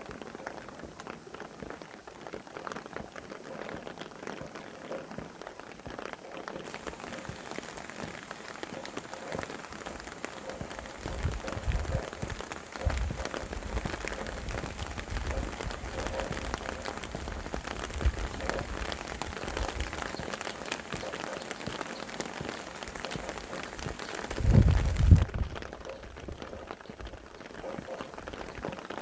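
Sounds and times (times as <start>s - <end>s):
rain falling on surfaces: 0.0s - 29.0s
wind gusts rumbling: 6.8s - 28.8s.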